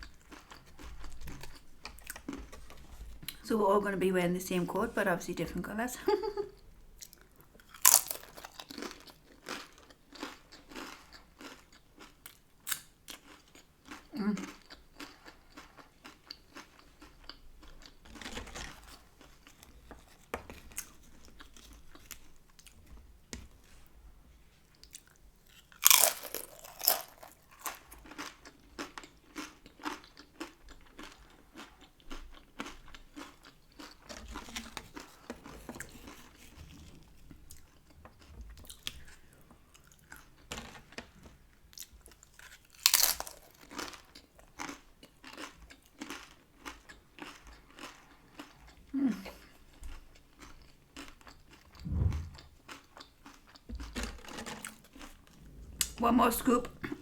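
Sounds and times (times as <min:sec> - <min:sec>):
person chewing crunchy food: 0:00.0 - 0:03.4, 0:07.0 - 0:22.8, 0:24.7 - 0:55.5
loud crunching bites: 0:07.7 - 0:09.0, 0:25.8 - 0:27.8, 0:42.8 - 0:43.5.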